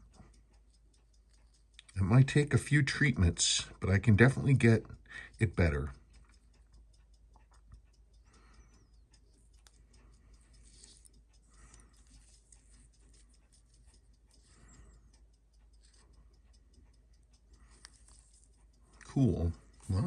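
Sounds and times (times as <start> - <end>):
faint steady ticking: 0.0 - 20.0
soft rustle: 10.4 - 14.6.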